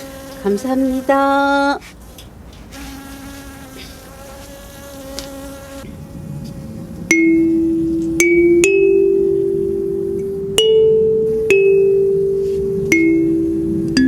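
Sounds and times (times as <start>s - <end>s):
faint buzzing tone: 2.8s - 14.0s
kalimba tines plucked: 7.1s - 14.0s.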